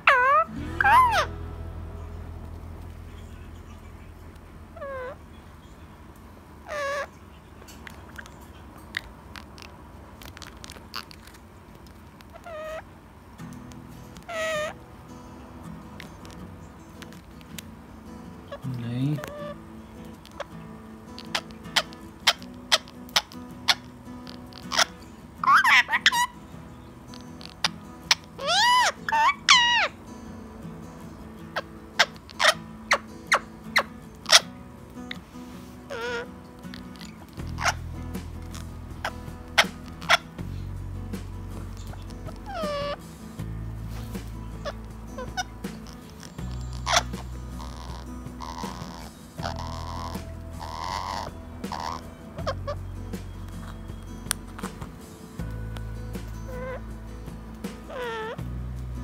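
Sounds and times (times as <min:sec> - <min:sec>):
parakeet shrill calls: 0:00.0 - 0:01.4, 0:04.7 - 0:05.8, 0:06.6 - 0:07.2, 0:12.3 - 0:12.9, 0:14.2 - 0:14.8, 0:18.4 - 0:20.6, 0:21.2 - 0:30.0, 0:31.6 - 0:34.5, 0:35.1 - 0:40.4, 0:41.7 - 0:43.2, 0:43.8 - 0:58.4.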